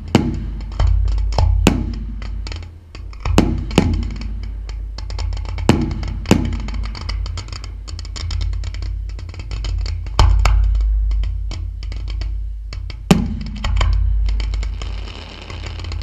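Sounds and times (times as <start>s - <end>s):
fireworks bursting with bangs: 0.0s - 4.6s, 5.3s - 7.3s, 13.0s - 16.0s
low rumble: 0.0s - 16.0s
fireworks crackling: 13.1s - 16.0s.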